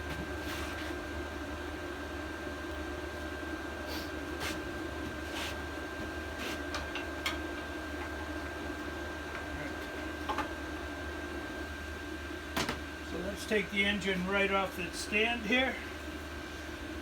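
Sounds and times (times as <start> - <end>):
workshop hum: 0.0 - 17.0.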